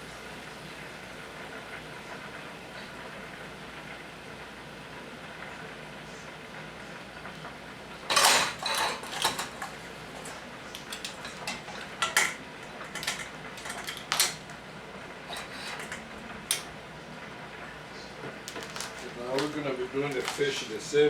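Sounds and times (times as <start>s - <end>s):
dishes clattering and clinking: 8.0s - 14.6s, 15.2s - 16.7s, 18.2s - 20.8s.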